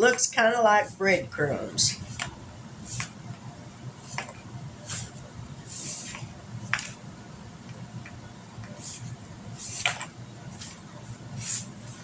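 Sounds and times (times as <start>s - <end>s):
low steady hum: 0.0s - 12.0s
utensil scraping in mixing bowl: 0.4s - 3.3s, 4.0s - 7.0s, 8.7s - 12.0s.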